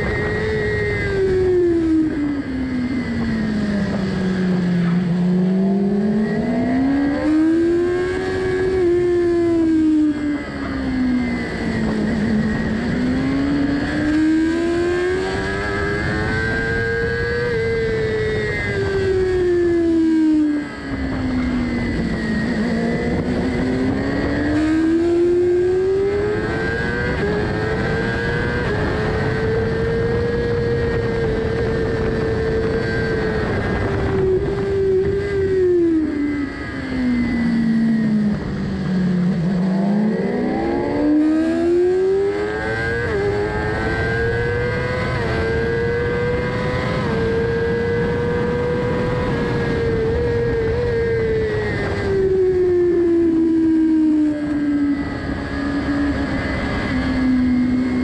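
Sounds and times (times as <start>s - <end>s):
motorcycle engine revving: 0.0s - 58.0s
wind rush: 20.5s - 58.0s.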